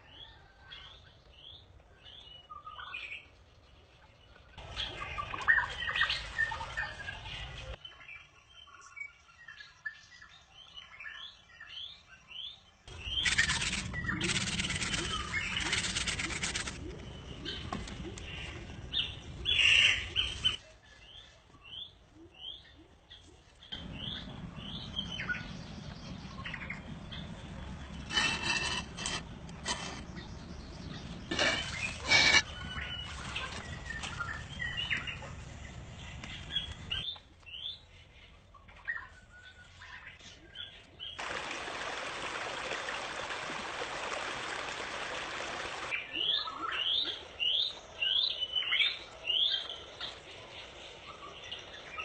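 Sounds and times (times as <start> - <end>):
small birds chirping: 12.9 - 41.2.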